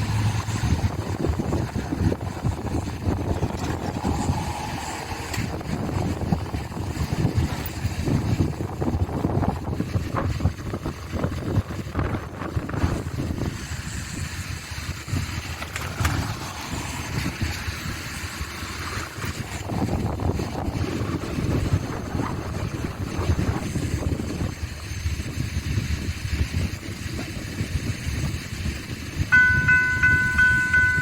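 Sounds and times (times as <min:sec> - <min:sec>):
train rolling past: 0:00.0 - 0:09.1, 0:12.8 - 0:25.0, 0:29.2 - 0:31.0
wind buffeting microphone: 0:00.0 - 0:31.0.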